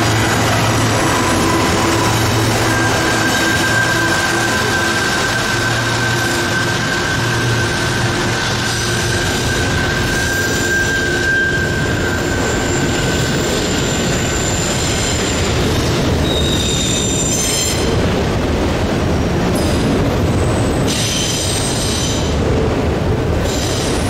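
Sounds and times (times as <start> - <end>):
high-pitched wheel squeal: 0.0 - 18.0
steel wheels rumbling on rails: 0.0 - 24.0.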